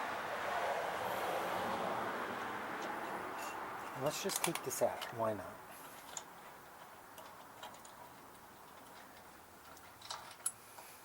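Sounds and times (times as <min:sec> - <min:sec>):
faint metal parts clicking: 0:02.8 - 0:05.2, 0:05.8 - 0:11.0.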